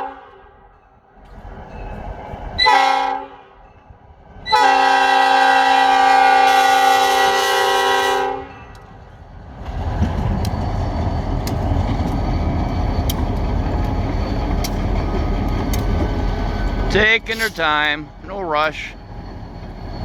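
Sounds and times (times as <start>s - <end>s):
train rumbling past: 0.0s - 20.0s
locomotive horn chord: 2.6s - 3.6s, 4.5s - 8.6s.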